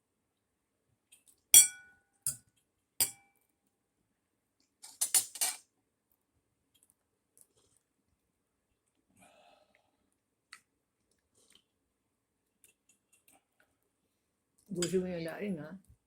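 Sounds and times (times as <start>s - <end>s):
cutlery clinking on a plate: 1.6s - 2.4s, 3.0s - 3.2s, 4.8s - 5.6s.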